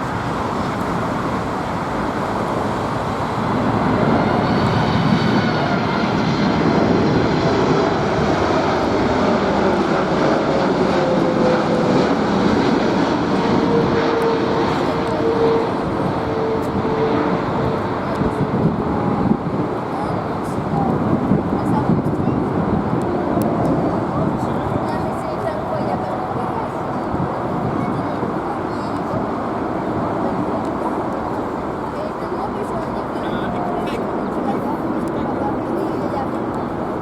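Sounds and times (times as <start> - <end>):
jet engine whine dropping in pitch: 0.0 - 37.0
jet engines roaring: 0.0 - 37.0.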